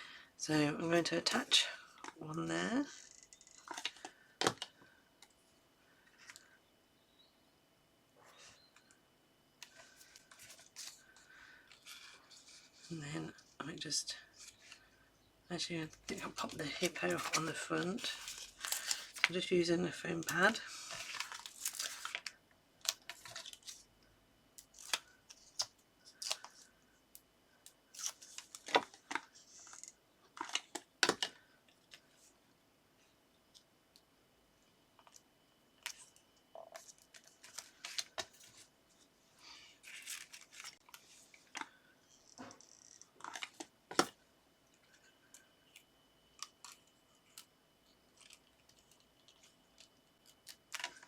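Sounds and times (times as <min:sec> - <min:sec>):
paper and card rustling: 0:16.0 - 0:22.3, 0:39.8 - 0:41.2.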